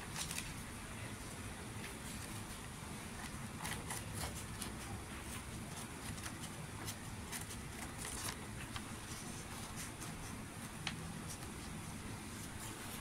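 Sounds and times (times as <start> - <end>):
scissors snipping paper: 3.2 - 11.8.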